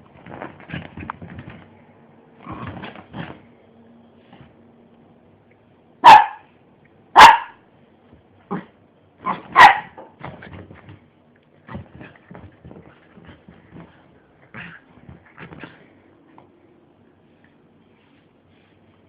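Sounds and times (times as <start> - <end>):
dog barking: 6.0 - 6.5, 7.2 - 7.6, 9.2 - 10.0.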